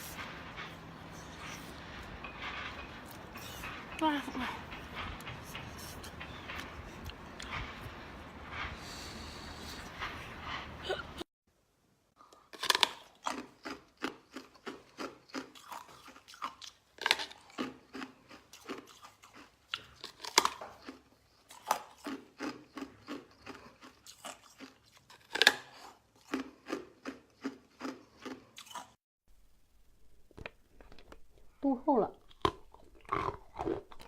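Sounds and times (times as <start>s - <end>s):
person chewing crunchy food: 12.2s - 29.0s, 32.2s - 34.0s.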